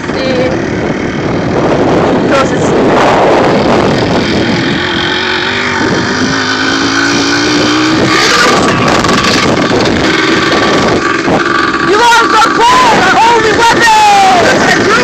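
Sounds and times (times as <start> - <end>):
dirt bike engine accelerating: 0.0 - 15.0.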